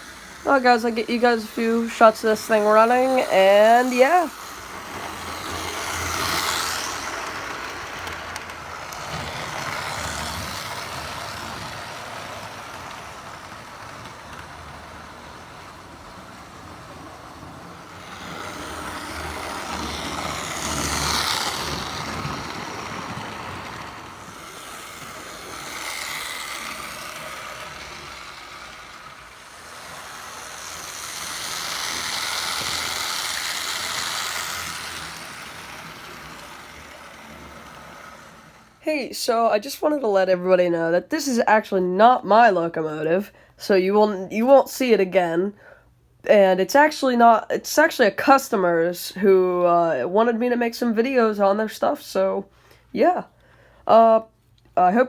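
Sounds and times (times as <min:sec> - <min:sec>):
model train whirring on track: 0:00.0 - 0:43.1.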